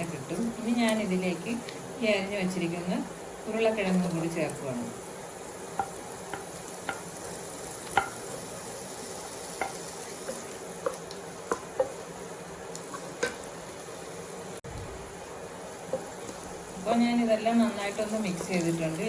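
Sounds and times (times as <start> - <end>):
food sizzling in oil: 0.0 - 19.0
spatula knocking against pan: 5.8 - 7.1, 7.9 - 8.3.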